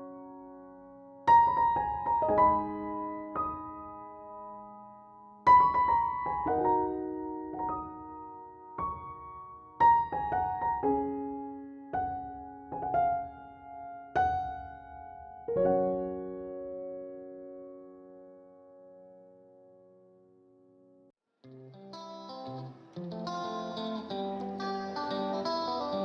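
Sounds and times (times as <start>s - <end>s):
slow solo piano melody: 0.0s - 20.1s.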